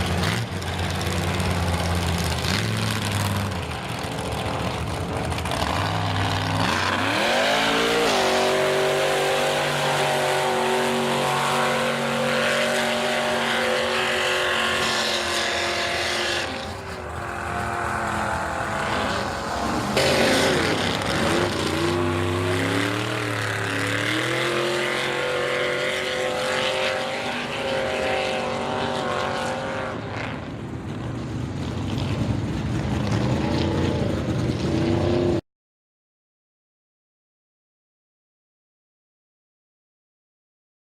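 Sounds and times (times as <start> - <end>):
truck engine revving hard: 0.0 - 30.5.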